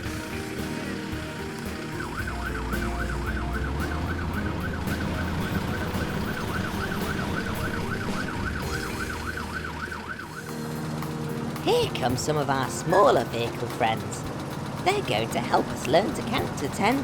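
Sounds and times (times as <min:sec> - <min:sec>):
low engine rumble: 0:00.0 - 0:17.0
siren yelping: 0:01.4 - 0:10.7.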